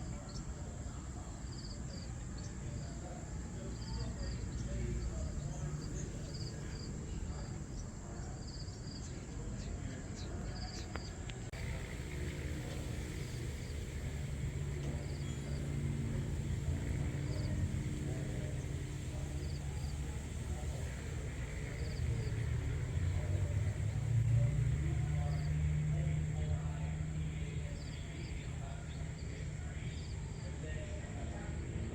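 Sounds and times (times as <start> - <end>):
low rumble: 11.5 - 30.0.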